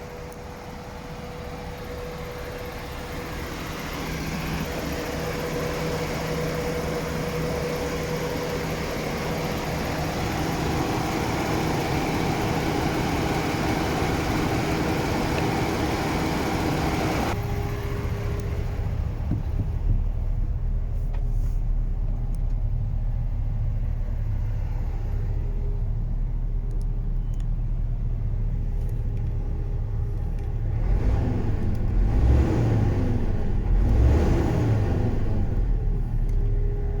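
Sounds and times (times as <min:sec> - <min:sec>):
truck diesel engine idling: 0:00.0 - 0:33.8
truck engine revving: 0:30.4 - 0:36.2.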